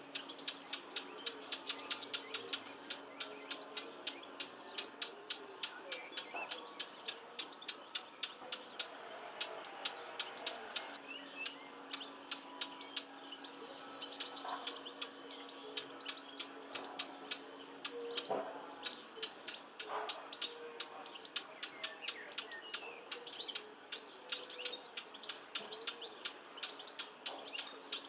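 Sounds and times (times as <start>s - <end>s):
birds ticking calls: 0.0s - 28.0s.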